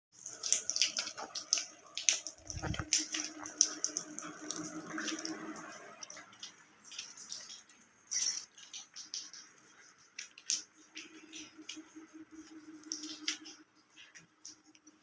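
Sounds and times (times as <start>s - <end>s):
water dripping and splashing: 0.1s - 15.0s.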